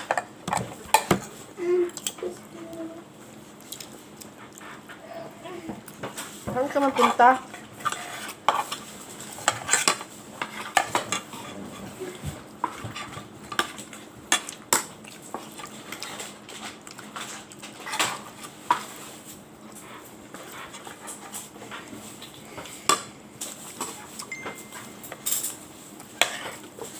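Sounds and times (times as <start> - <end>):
cutlery and dishes clinking: 23.8 - 25.6.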